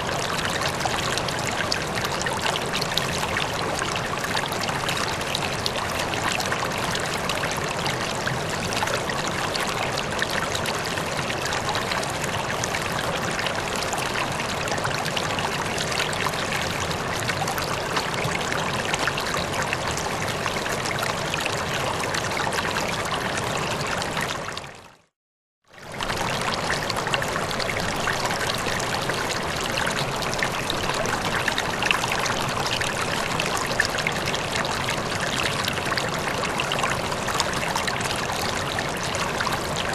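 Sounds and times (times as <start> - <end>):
river water flowing: 25.8 - 39.9.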